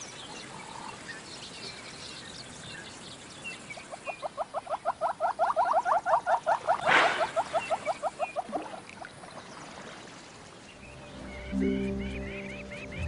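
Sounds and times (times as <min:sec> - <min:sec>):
animal calling rapid rising chirps: 0:04.8 - 0:08.3.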